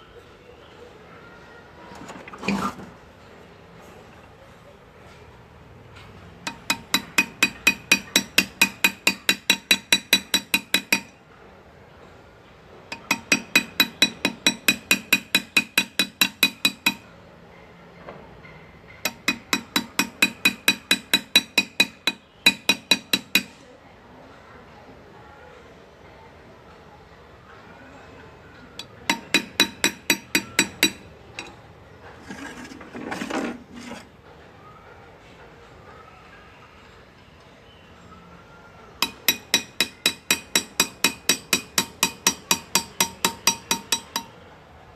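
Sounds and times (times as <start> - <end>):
scraping on metal: 1.9 - 3.0, 28.8 - 34.3
hammer tapping chisel into metal: 6.4 - 11.2, 12.9 - 17.1, 19.0 - 23.6, 28.8 - 31.6, 39.0 - 44.4.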